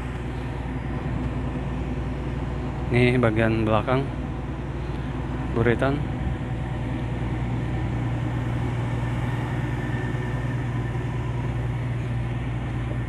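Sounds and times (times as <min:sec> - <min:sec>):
ship engine drone: 0:00.0 - 0:13.0.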